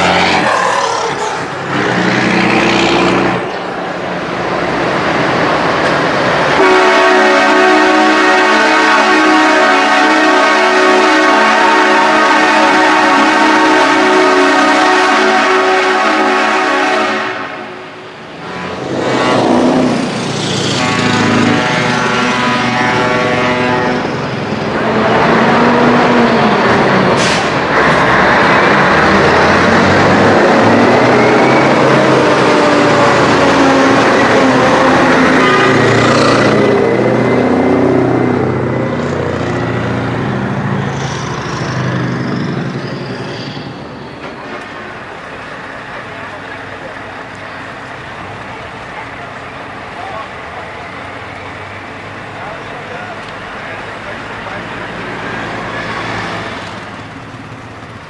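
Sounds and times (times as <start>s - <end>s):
truck diesel engine passing: 0.0s - 58.0s
truck air horn blasts: 6.6s - 19.5s, 20.6s - 24.3s, 34.0s - 36.6s.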